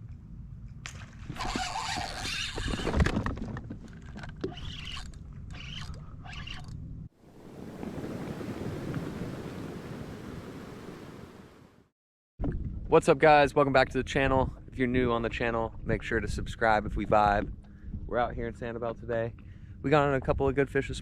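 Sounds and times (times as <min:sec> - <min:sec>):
wind: 0:00.0 - 0:21.0
water splashing: 0:07.2 - 0:11.5
waves rushing: 0:07.2 - 0:11.9.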